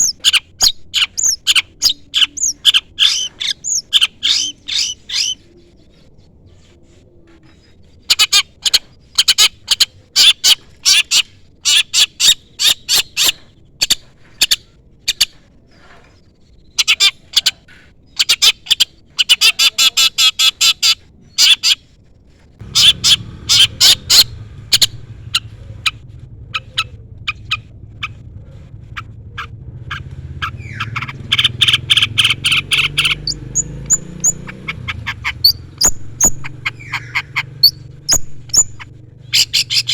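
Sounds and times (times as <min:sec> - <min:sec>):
shrike calling: 0:00.0 - 0:05.8, 0:22.6 - 0:39.9
low rumble: 0:22.6 - 0:39.4.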